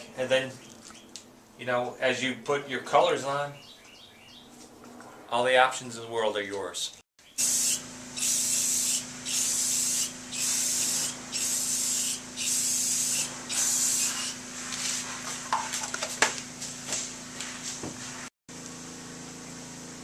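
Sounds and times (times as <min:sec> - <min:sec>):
spray paint hissing: 0:07.4 - 0:14.8.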